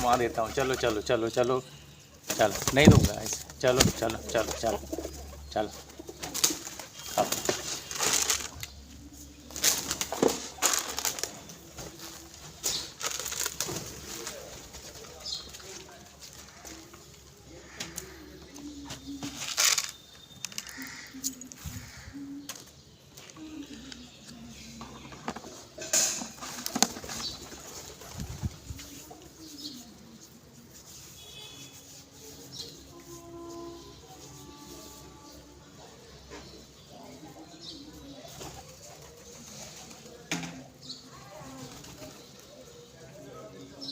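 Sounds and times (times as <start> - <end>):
birds rustling and scuffling: 0.0 - 43.9
bird wing flaps and rustling: 2.2 - 16.8, 25.0 - 29.8, 41.4 - 42.4.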